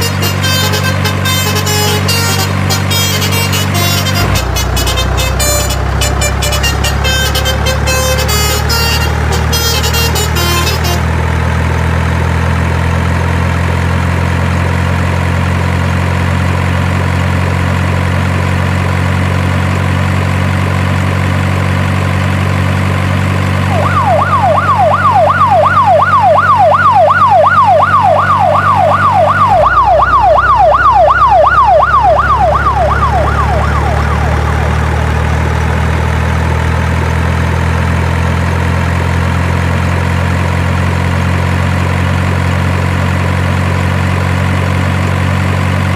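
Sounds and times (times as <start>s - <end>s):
truck engine drone: 0.0s - 45.9s
yelping siren: 23.7s - 36.0s.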